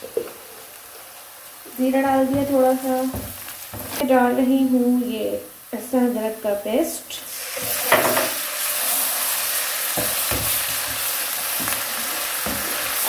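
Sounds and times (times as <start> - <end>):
food sizzling in hot oil: 0.0 - 13.0
wooden spoon scraping a pan: 7.5 - 13.0.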